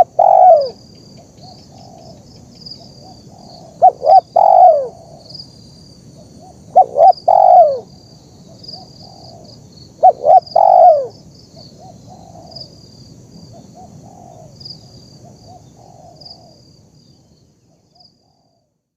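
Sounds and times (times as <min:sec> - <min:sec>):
dove cooing: 0:00.0 - 0:00.8, 0:01.4 - 0:02.2, 0:02.8 - 0:05.3, 0:06.2 - 0:11.2, 0:13.5 - 0:16.6.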